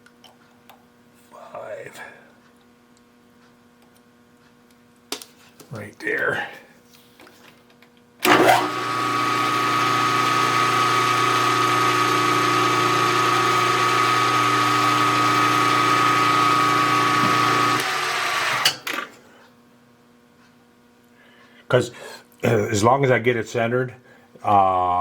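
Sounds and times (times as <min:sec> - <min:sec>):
milling machine spindle running: 0:08.2 - 0:18.7.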